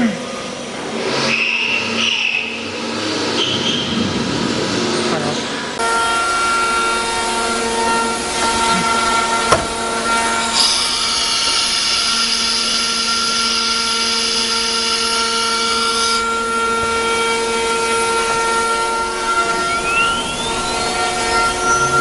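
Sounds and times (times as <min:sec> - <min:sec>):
cnc router machine whine: 0:00.0 - 0:22.0
spindle whine rising in pitch: 0:00.3 - 0:22.0
high hiss of cutting: 0:08.2 - 0:16.8.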